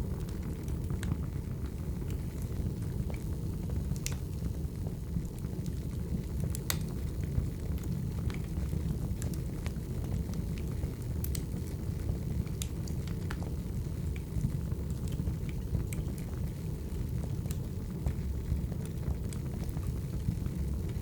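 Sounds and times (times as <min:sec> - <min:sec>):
low rumble of flames: 0:00.0 - 0:21.0
logs crackling and popping: 0:00.1 - 0:21.0.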